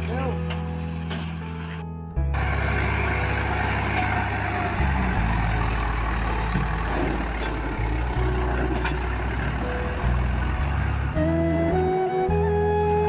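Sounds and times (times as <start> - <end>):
tractor diesel engine running: 2.2 - 12.5.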